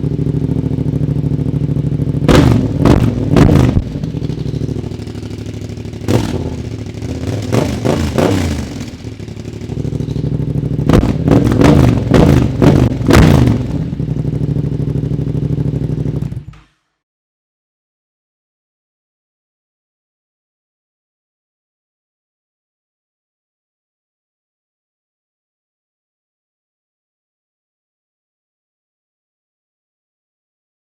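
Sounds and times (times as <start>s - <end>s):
motorcycle engine revving: 0.0s - 16.6s.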